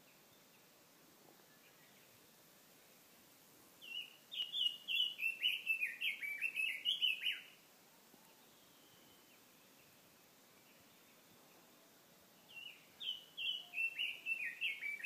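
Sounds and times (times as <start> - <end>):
small songbird singing: 1.4 - 3.0, 3.8 - 7.6, 8.2 - 15.0.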